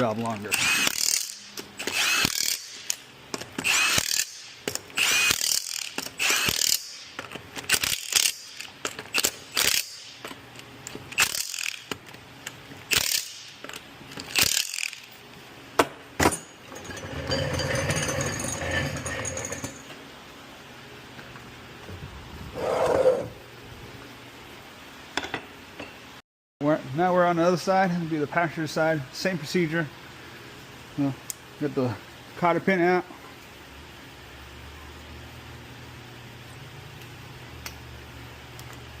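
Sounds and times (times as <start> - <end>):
ratchet wrench clicking: 0.4 - 3.0, 3.6 - 10.2, 10.9 - 12.0, 12.9 - 13.5, 14.2 - 15.1
mechanical low hum: 15.0 - 26.2.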